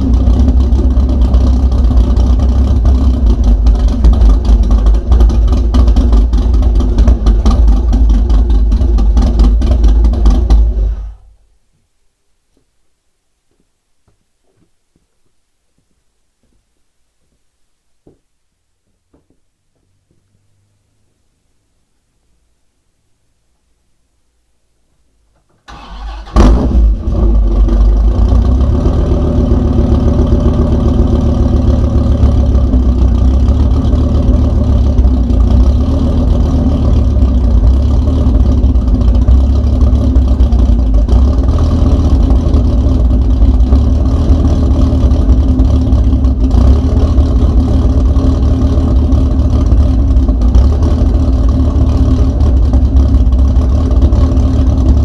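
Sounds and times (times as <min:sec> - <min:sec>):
engine starting and idling: 0:00.2 - 0:11.2, 0:25.6 - 0:55.0.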